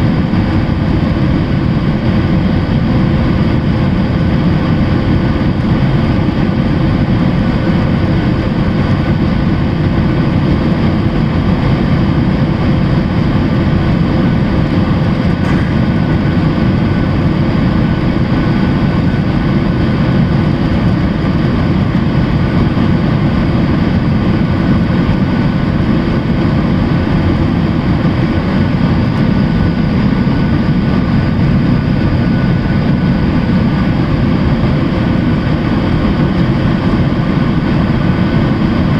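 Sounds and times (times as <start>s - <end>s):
faint jet engine whine: 0.0s - 38.9s
jet engine roar: 0.0s - 38.9s.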